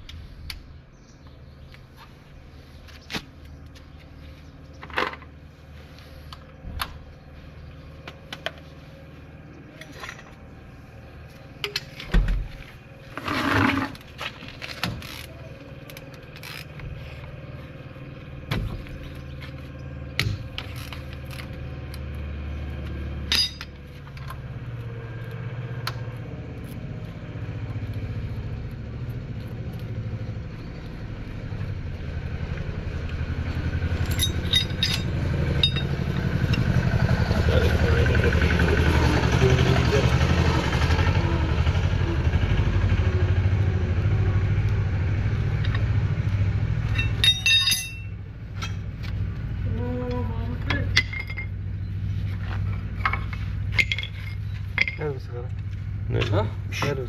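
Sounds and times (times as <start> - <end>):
vehicle engine running: 0.0 - 57.0
scraping: 13.0 - 15.5
metallic tool knocks and clinks: 47.0 - 48.8.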